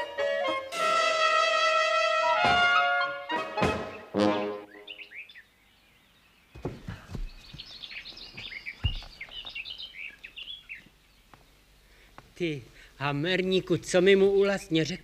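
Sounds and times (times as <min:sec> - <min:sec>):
brass chord: 0:00.0 - 0:04.9
birds chirping: 0:03.7 - 0:12.6
dull thumps: 0:06.5 - 0:09.6
rustling: 0:06.6 - 0:10.4.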